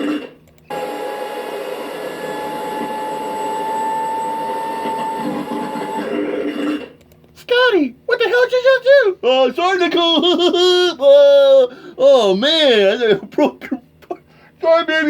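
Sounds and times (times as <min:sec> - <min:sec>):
vacuum cleaner whining: 0:00.7 - 0:06.5.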